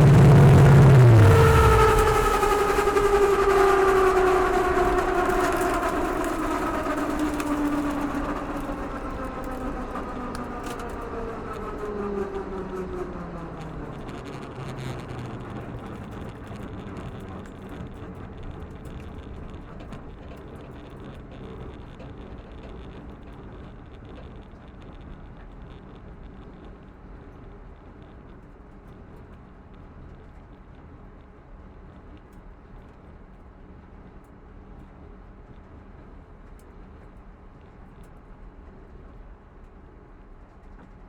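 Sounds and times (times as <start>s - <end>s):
drag car engine revs dropping: 0.0s - 15.7s.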